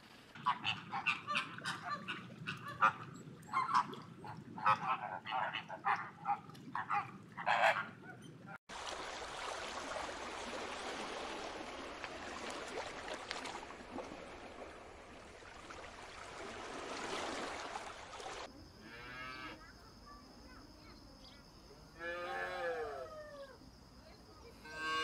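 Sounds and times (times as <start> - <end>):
rushing bubbling water: 8.7 - 18.5.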